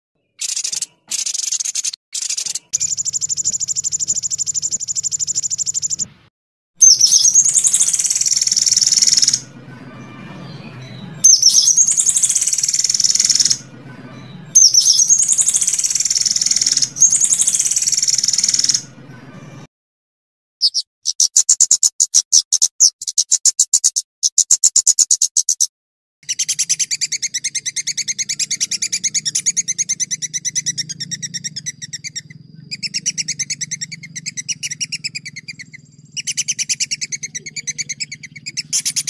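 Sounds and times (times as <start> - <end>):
dry rattling bird trill: 0.2 - 6.1, 6.8 - 19.6, 20.6 - 39.0
high-pitched birdsong phrases: 0.2 - 6.1, 6.8 - 19.7, 20.6 - 39.0
short high bird chirps: 0.2 - 6.1, 6.8 - 13.6, 14.2 - 18.9, 20.6 - 39.0.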